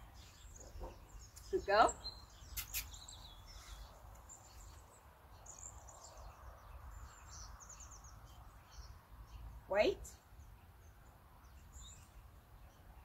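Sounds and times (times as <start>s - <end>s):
small birds chirping: 0.0s - 13.0s
sharp clicks: 2.5s - 3.0s.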